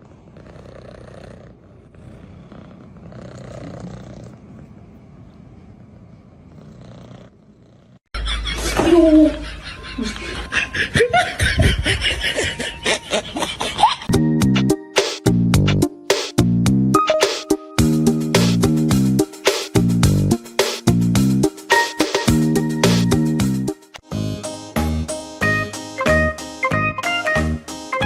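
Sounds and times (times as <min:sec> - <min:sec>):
faint low hum: 0:01.4 - 0:08.0
loud laughter: 0:08.2 - 0:14.1.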